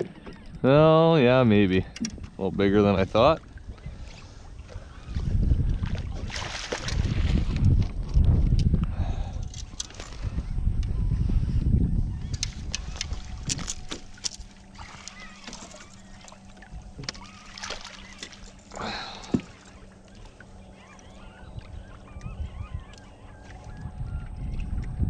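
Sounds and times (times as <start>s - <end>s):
low motor hum: 0.0s - 25.0s
faint wavering bird calls: 3.6s - 5.5s, 9.7s - 24.9s.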